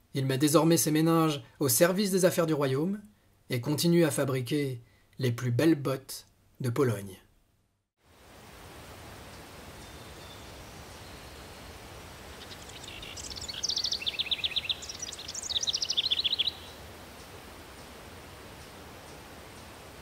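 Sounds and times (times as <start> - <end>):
steady low hiss: 0.0 - 20.0
songbird trilling: 12.3 - 16.8.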